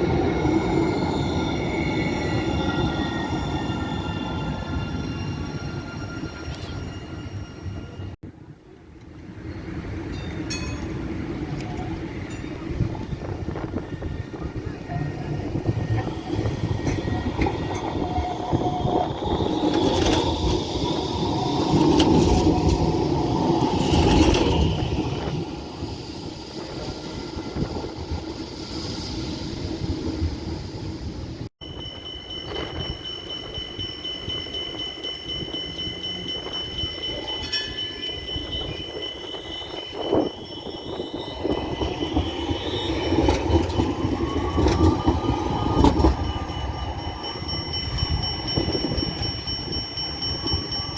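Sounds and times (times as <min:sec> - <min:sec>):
tram wheel squeals: 0:00.0 - 0:08.5, 0:09.1 - 0:50.9
tram wheels rumbling on rails: 0:00.0 - 0:50.9
tram motor whine: 0:11.5 - 0:50.9.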